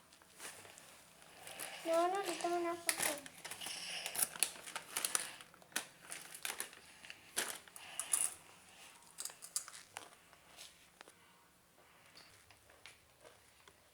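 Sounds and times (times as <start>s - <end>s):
plastic crinkling and rustling: 0.0s - 11.2s.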